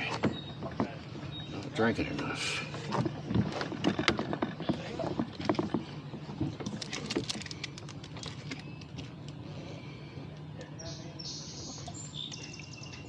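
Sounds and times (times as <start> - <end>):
oars knocking in oarlocks: 2.8 - 8.6.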